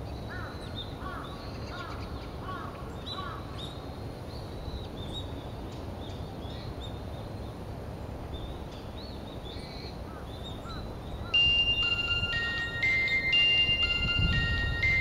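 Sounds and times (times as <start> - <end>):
low background noise: 0.0 - 15.0
birds chirping and whistling: 10.5 - 15.0.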